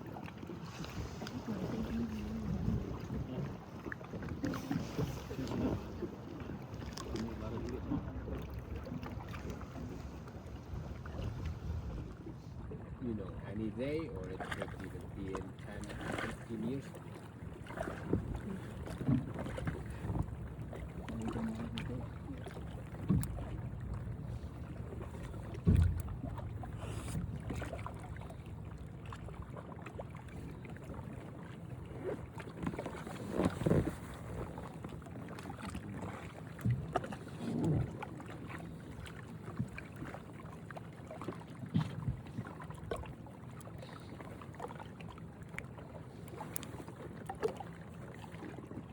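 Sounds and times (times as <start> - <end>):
boat engine humming: 0.0 - 48.9
wind on microphone: 0.9 - 3.5.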